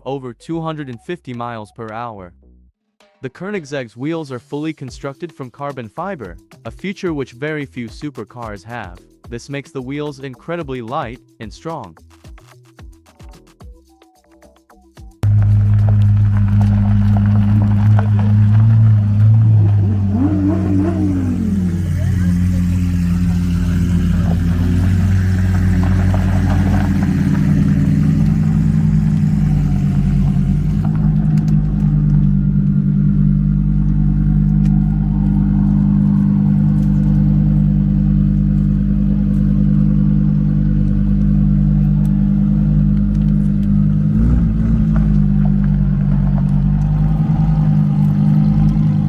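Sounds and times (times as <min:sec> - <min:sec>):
car engine running: 0:15.2 - 0:49.0.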